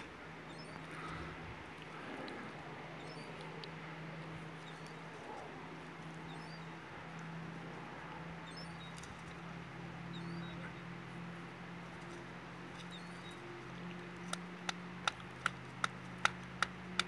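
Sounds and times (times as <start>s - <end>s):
steady low hum: 0.0s - 17.0s
regular ticking: 14.2s - 17.0s.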